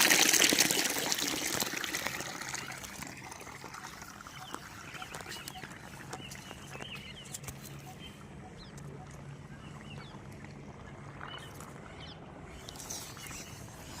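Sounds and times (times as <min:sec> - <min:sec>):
steady low hum: 0:02.1 - 0:14.0
bird chirps: 0:02.6 - 0:10.2.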